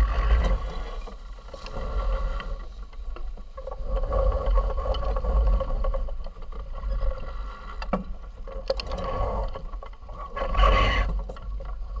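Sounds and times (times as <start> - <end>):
water rushing along hull: 0.0 - 12.0.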